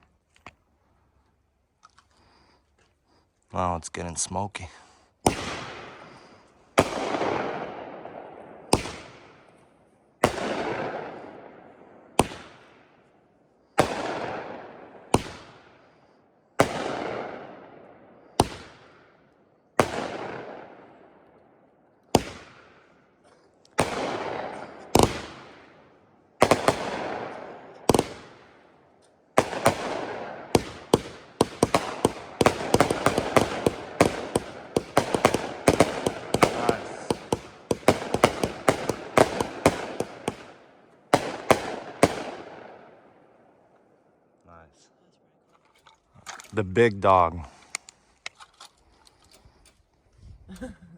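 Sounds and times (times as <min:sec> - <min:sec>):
firework aerial breaks echoing: 0:29.4 - 0:40.6
rapid crackling pops: 0:29.4 - 0:40.6.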